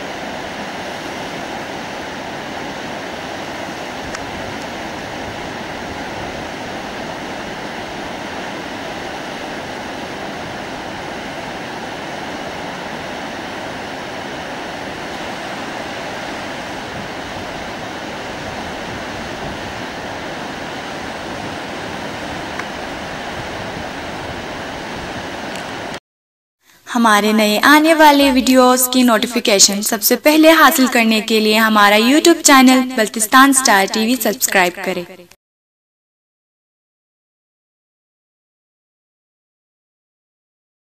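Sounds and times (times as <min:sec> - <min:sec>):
whitewater rushing: 0:00.0 - 0:26.0.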